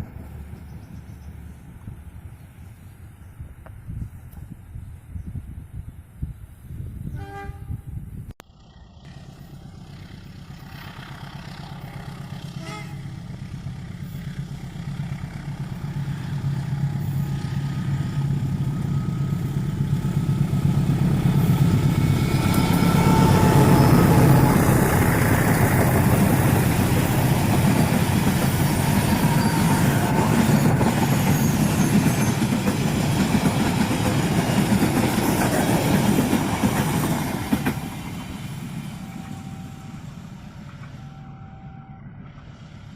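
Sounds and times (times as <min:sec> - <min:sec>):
train horn: 0:07.1 - 0:07.9, 0:12.4 - 0:13.4, 0:22.1 - 0:26.2, 0:28.6 - 0:31.6, 0:39.0 - 0:42.5
wheels rushing on rails: 0:07.9 - 0:42.9
locomotive engine drone: 0:08.4 - 0:42.9.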